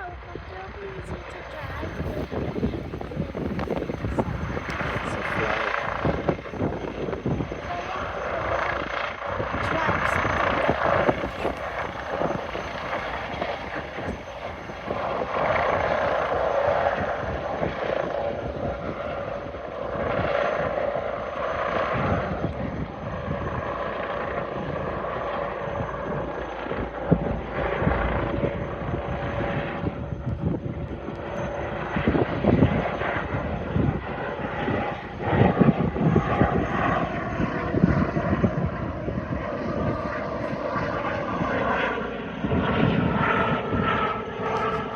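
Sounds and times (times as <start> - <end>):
helicopter rotor noise: 0.0 - 44.9
helicopter turbine whine: 0.0 - 44.9.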